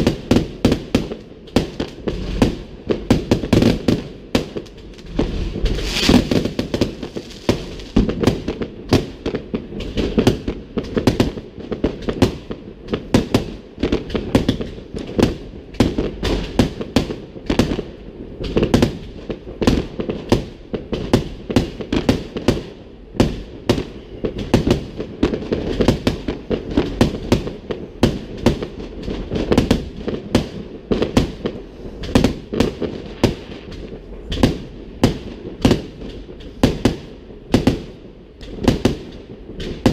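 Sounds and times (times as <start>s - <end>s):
fireworks bangs: 0.0s - 39.9s
low rumble: 4.6s - 8.1s.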